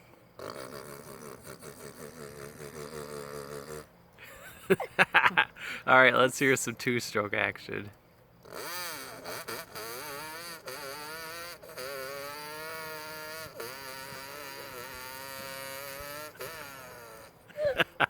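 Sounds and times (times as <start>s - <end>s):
motocross bike engine revving: 8.5s - 17.4s.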